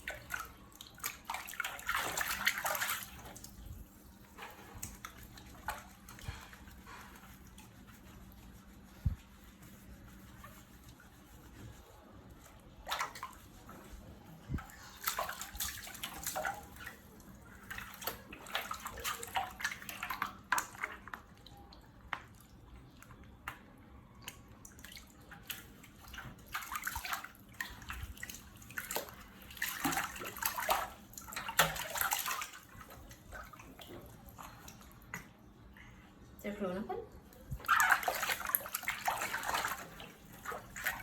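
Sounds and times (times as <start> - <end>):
water splashing: 0.0 - 3.6, 24.8 - 35.1, 37.5 - 41.0.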